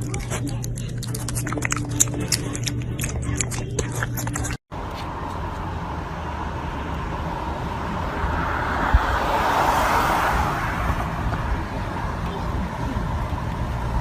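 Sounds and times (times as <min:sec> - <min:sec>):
car road noise: 0:04.7 - 0:14.0.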